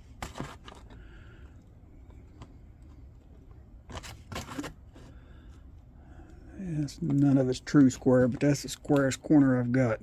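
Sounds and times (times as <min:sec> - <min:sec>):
mica sheet rustling and scraping: 0:03.8 - 0:05.2.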